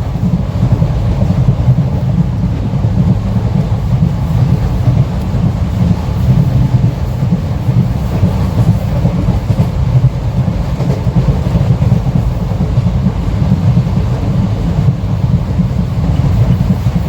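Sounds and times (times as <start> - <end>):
train rumbling on track: 0.0 - 17.0.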